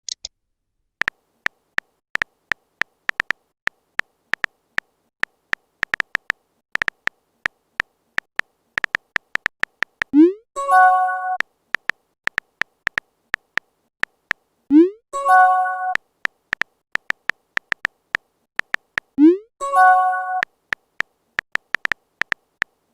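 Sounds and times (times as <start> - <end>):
phone keyboard taps: 1.0 - 4.5, 5.2 - 7.2, 7.8 - 10.1, 11.8 - 14.2, 16.2 - 19.2, 20.7 - 22.8.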